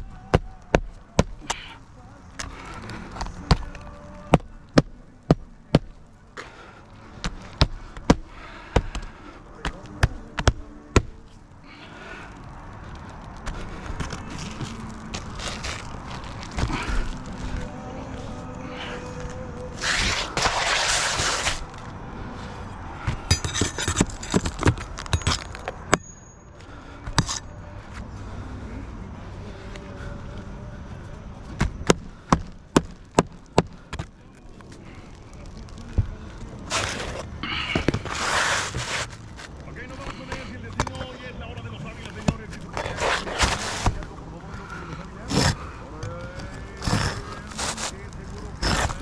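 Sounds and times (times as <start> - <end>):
metal objects clinking: 23.3 - 26.4.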